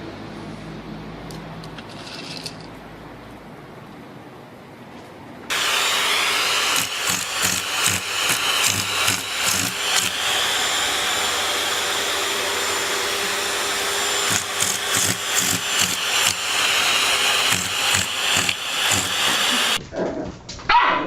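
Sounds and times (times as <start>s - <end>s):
small motor whirring: 5.5s - 19.8s.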